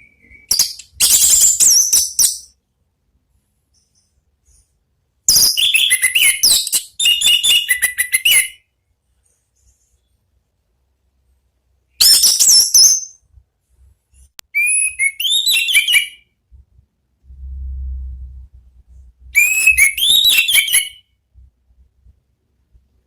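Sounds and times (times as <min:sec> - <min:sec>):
thrush singing whistles: 0:00.0 - 0:02.5, 0:05.3 - 0:08.6, 0:14.6 - 0:16.3, 0:19.4 - 0:21.1
faint low rumble: 0:16.4 - 0:19.4.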